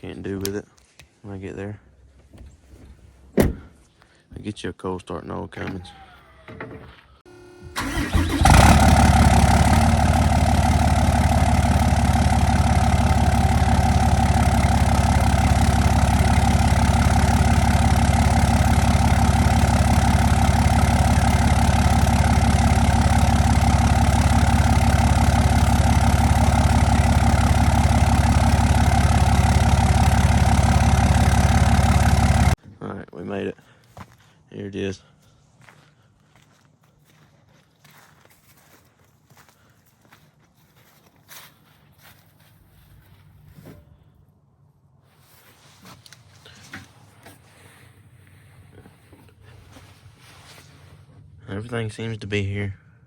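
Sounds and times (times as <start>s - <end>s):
diesel engine cranking: 7.3s - 32.6s
diesel engine idling: 7.3s - 32.6s.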